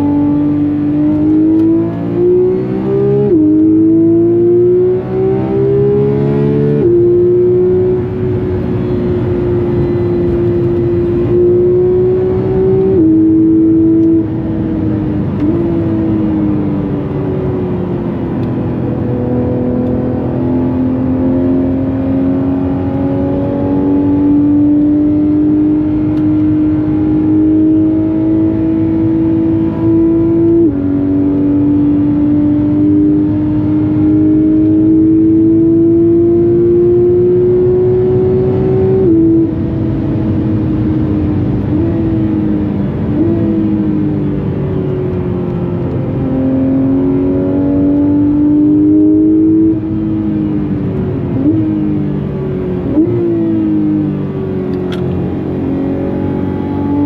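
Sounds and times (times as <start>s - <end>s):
sports car engine accelerating: 0.0s - 57.0s.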